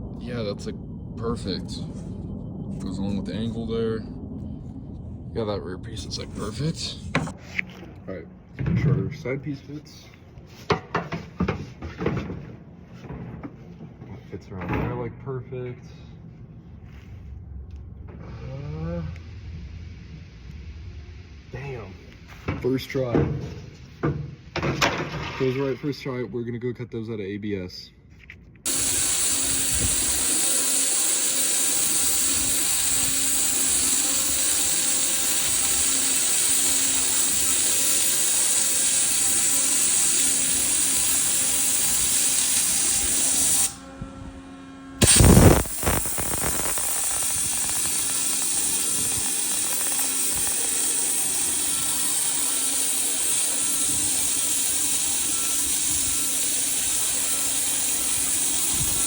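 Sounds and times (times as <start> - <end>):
faint steady hum: 0.0 - 8.6
waterjet cutter hissing: 28.7 - 44.0, 45.0 - 59.0.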